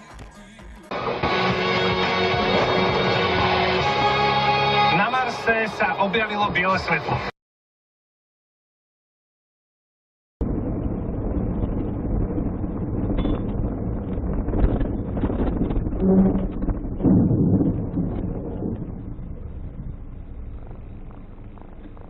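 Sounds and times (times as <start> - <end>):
vehicle rumble: 10.4 - 22.0
wind buffeting microphone: 10.4 - 22.0.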